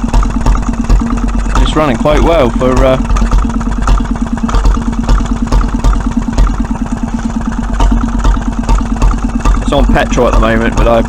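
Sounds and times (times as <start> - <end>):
stationary engine running: 0.0 - 11.0.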